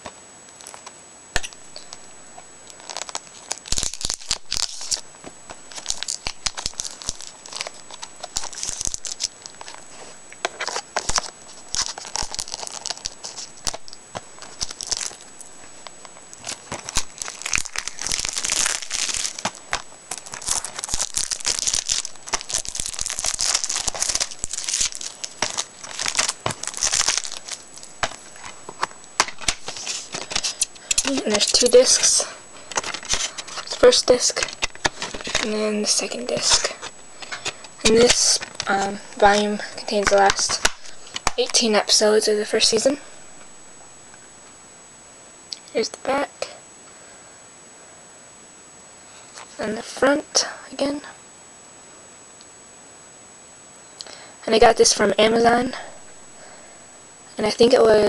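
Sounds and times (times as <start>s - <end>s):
plastic wrap tearing and crinkling: 0.6s - 41.6s.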